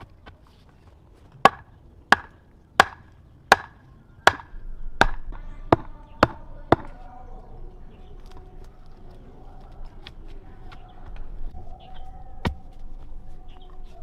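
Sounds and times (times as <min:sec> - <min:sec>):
blade chopping: 0:01.4 - 0:07.0.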